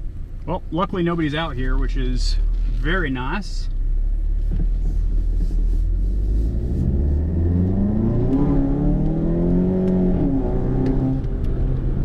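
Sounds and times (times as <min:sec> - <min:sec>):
car engine accelerating: 0:03.8 - 0:12.0.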